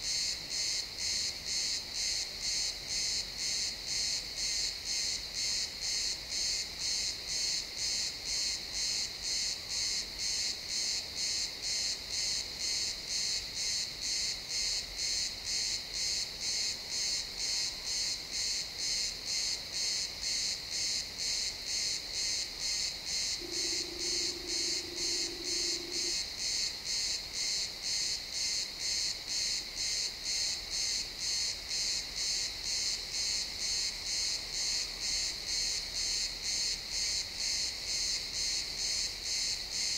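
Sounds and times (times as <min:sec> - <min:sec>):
crickets chirping: 0:00.0 - 0:39.9
faint low hum: 0:23.4 - 0:26.2.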